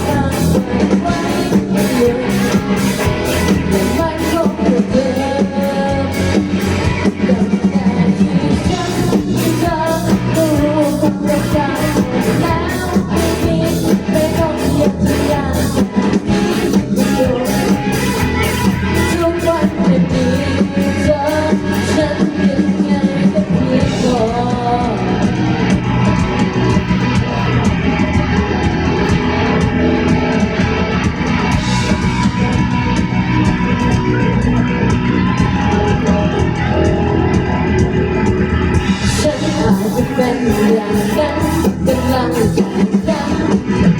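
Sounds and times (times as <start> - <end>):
person singing: 0.0 - 25.4, 38.8 - 43.9
bass: 0.0 - 43.9
drums: 0.0 - 43.9
guitar: 0.0 - 43.9.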